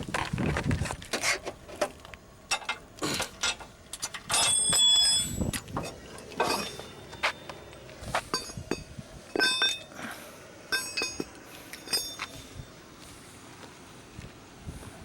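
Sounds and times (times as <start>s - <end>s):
high bell-like clink: 4.3s - 5.6s, 6.4s - 9.9s, 10.7s - 12.6s.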